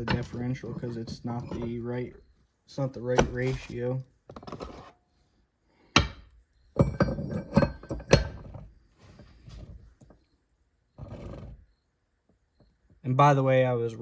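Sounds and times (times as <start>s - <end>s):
metal parts knocking and clinking: 6.0s - 8.7s.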